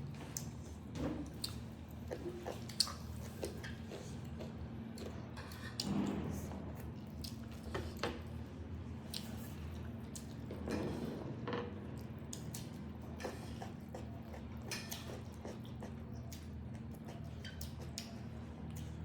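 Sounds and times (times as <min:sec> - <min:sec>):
squishy chewing: 0:00.2 - 0:06.0, 0:12.0 - 0:19.0.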